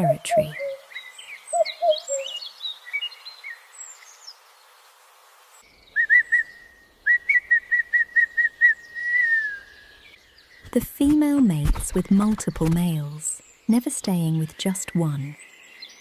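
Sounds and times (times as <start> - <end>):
bird chirping and twittering: 0.0 - 4.4
short whistled bird notes: 5.9 - 9.8.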